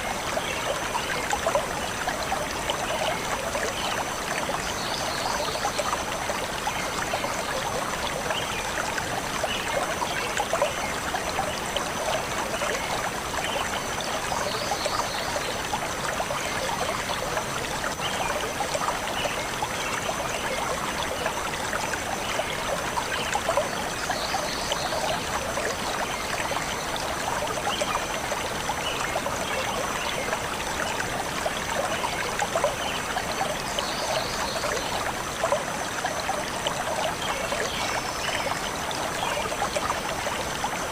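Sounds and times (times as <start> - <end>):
stream running over stones: 0.0 - 40.9.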